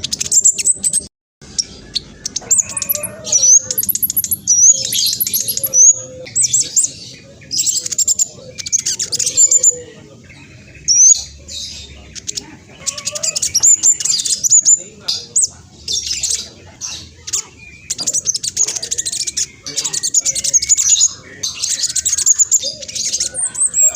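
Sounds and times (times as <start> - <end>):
bird singing fast chirps and trills: 0.0 - 23.9.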